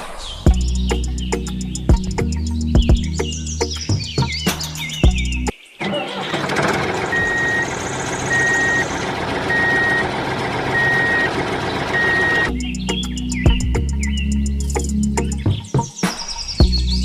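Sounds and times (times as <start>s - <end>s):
truck reversing alarm beeping: 5.8s - 12.7s
engine running: 5.8s - 14.0s.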